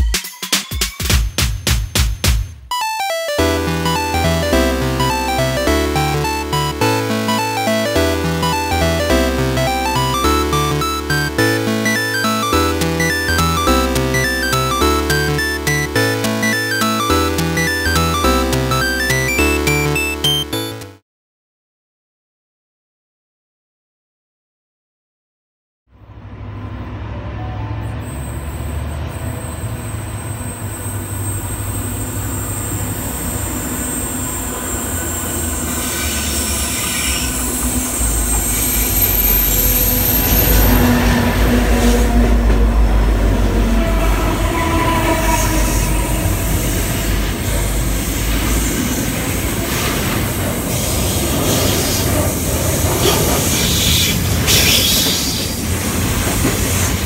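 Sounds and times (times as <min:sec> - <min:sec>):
diesel locomotive engines rumbling: 0:26.0 - 0:57.0
wheel squeals: 0:28.0 - 0:41.1, 0:53.0 - 0:55.6
wheels rolling on rails: 0:45.8 - 0:57.0.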